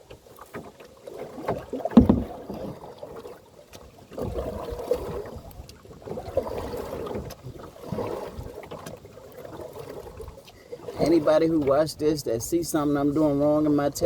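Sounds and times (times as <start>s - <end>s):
canoe paddle splashing in water: 0.0s - 14.0s.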